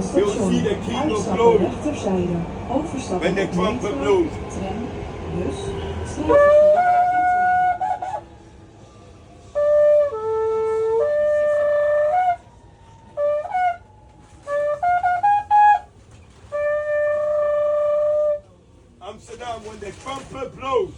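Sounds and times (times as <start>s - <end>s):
trumpet playing: 6.2s - 8.2s, 9.6s - 12.5s, 13.2s - 18.4s.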